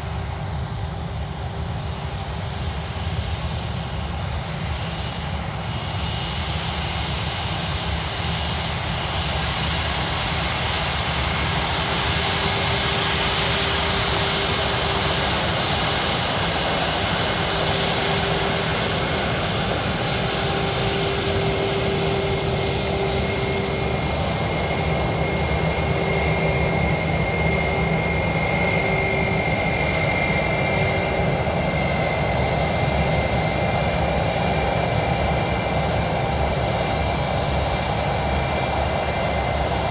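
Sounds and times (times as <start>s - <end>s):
jet engines whining: 0.0s - 39.9s
higher whine: 11.5s - 39.9s.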